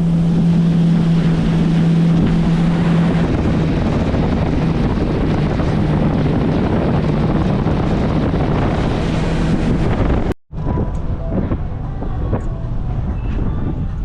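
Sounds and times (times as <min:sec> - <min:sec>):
rushing water: 0:00.0 - 0:10.3
jet ski engine running: 0:00.0 - 0:14.0
quieter low rumble: 0:00.0 - 0:14.0
wind buffeting microphone: 0:00.0 - 0:14.0.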